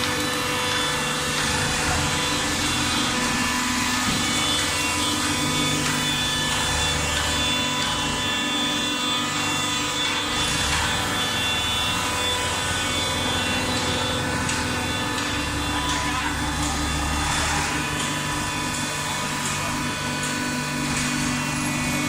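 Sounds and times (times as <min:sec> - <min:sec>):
baler machine running: 0:00.0 - 0:22.0.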